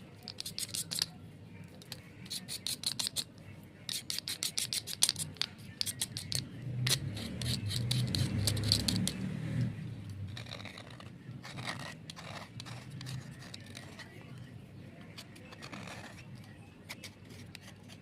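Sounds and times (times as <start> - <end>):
scraping coating off slate: 3.9 - 9.2.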